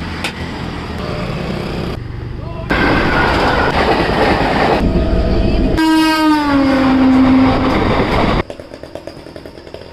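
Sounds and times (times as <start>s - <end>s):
train rumbling past: 0.0s - 9.9s
train horn: 4.8s - 8.0s.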